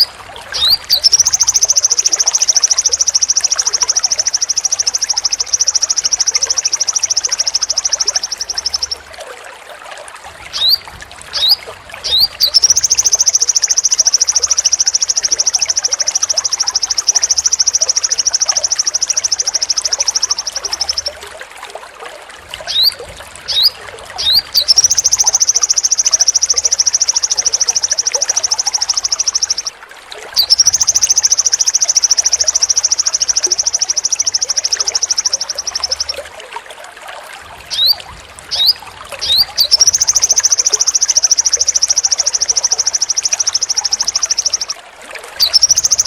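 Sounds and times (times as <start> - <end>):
bird singing high-pitched trill: 0.0 - 9.0, 10.5 - 21.2, 22.7 - 29.7, 30.4 - 36.2, 37.7 - 44.8, 45.4 - 46.0.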